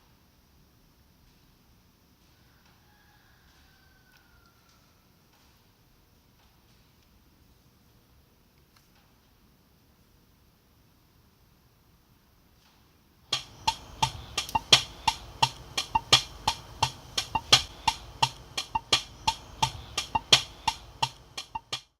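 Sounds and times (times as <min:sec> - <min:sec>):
sharp percussive knocks: 0:13.3 - 0:21.9.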